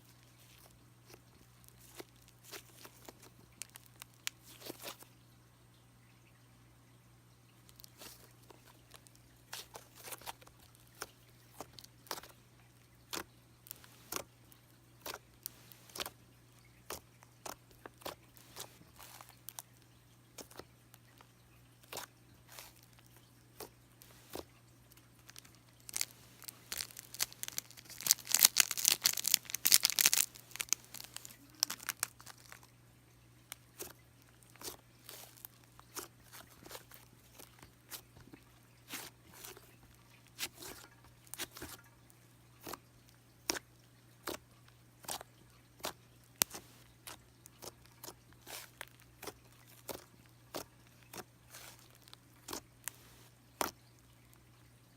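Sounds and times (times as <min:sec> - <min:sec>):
slime crackling and tearing: 0:00.4 - 0:05.0, 0:23.6 - 0:24.5, 0:25.1 - 0:32.7, 0:33.5 - 0:38.1, 0:45.8 - 0:53.8
slime clicking and popping: 0:25.3 - 0:32.7.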